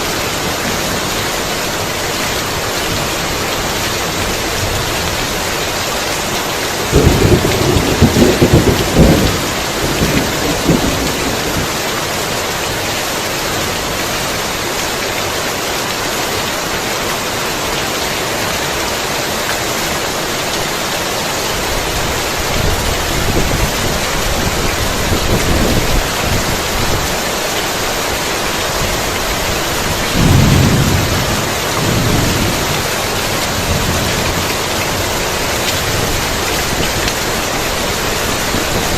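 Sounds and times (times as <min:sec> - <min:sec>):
heavy rain falling: 0:00.0 - 0:38.9
thunder rumbling: 0:06.9 - 0:11.8, 0:29.9 - 0:37.0.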